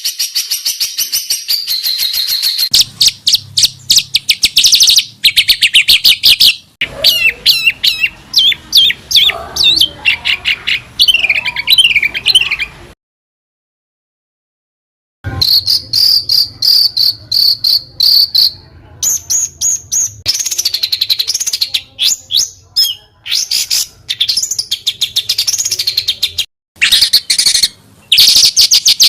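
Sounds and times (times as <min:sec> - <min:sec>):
songbird trills: 0:00.0 - 0:12.7, 0:15.3 - 0:29.0
sharp down-slurred whistles: 0:15.3 - 0:18.6.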